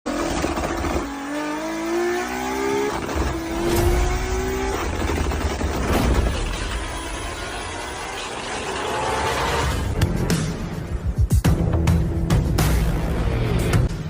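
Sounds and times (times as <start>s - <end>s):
car engine accelerating hard: 0.1s - 10.0s.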